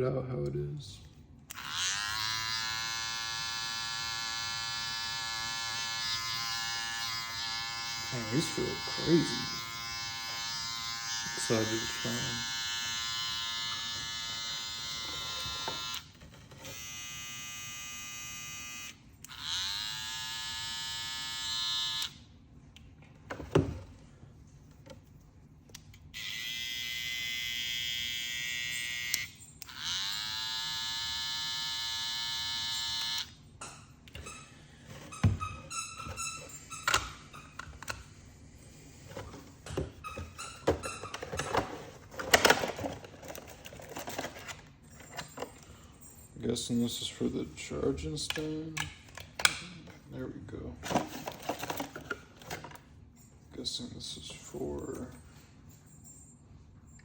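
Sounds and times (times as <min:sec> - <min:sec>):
hair clipper buzzing: 0:01.5 - 0:22.2, 0:26.1 - 0:33.4.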